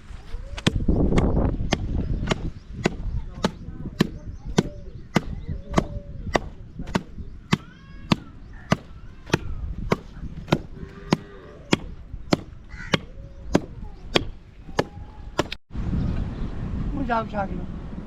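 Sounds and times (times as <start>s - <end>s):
evenly paced chopping: 0.6s - 15.6s.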